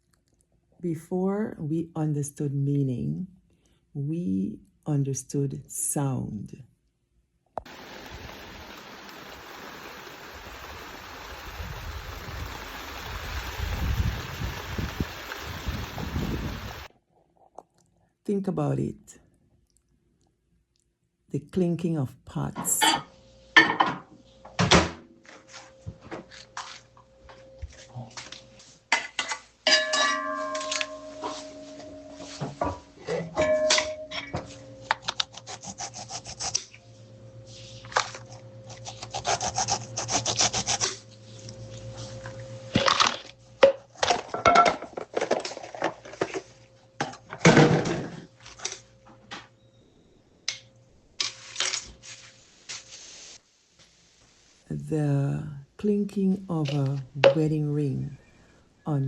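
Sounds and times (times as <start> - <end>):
low gusty rumbles: 11.4 - 16.9
pots and pans clattering: 22.7 - 24.1, 29.0 - 34.5, 43.6 - 46.4, 47.1 - 48.3
struck pot ringing: 29.7 - 32.4, 33.3 - 34.5.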